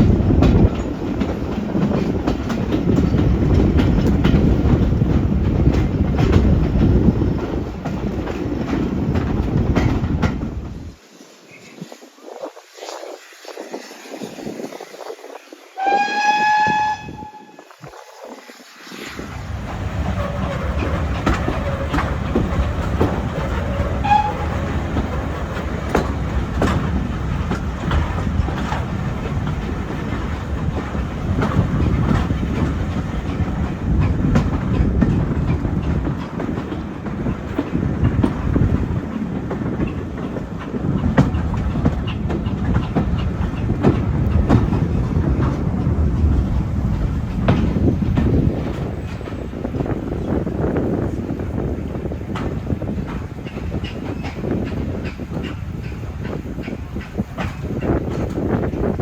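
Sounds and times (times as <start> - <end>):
wheels clicking over rail joints: 0.0 - 10.9, 19.1 - 59.0
railway carriages rumbling: 0.0 - 59.0
steam locomotive whistle: 15.7 - 18.2, 23.7 - 24.8.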